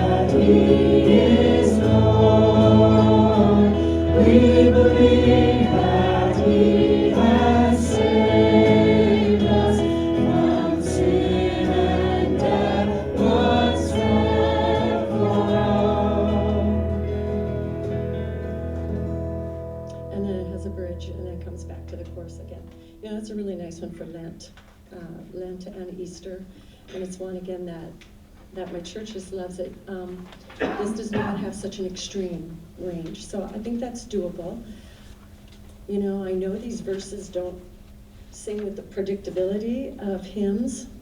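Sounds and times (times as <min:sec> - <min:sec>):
choir singing worship song: 0:00.0 - 0:18.8
low accompaniment: 0:00.0 - 0:22.8.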